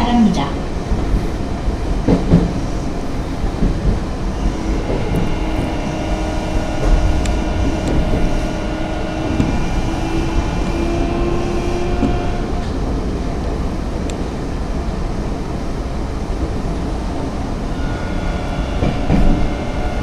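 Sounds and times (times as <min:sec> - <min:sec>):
electric train rumbling: 0:00.0 - 0:20.0
train motor whine: 0:04.2 - 0:12.8.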